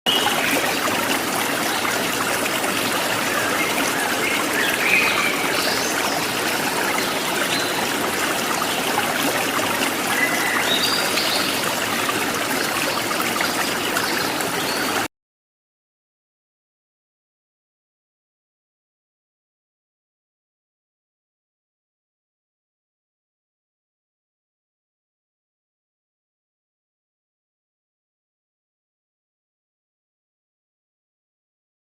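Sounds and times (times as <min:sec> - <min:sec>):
stream water flowing: 0:00.1 - 0:15.1.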